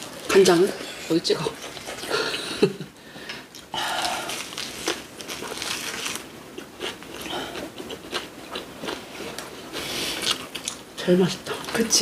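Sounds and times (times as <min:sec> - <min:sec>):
person biting and chewing food: 0:03.5 - 0:10.8.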